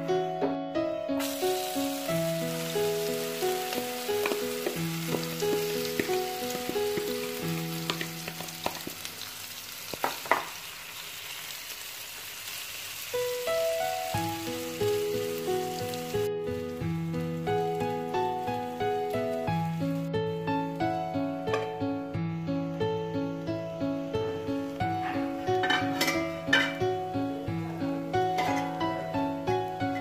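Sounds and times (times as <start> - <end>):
instrumental background music: 0.0 - 10.0, 13.1 - 30.0
food sizzling in oil: 1.2 - 20.1.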